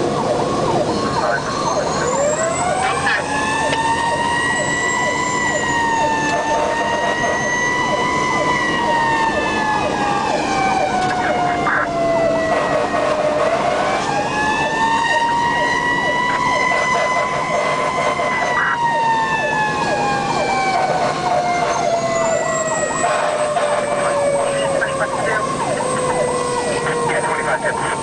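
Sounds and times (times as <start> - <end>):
fire engine siren wailing: 0.0 - 28.0
quick chirping siren sweeps: 0.7 - 12.5, 21.3 - 27.7.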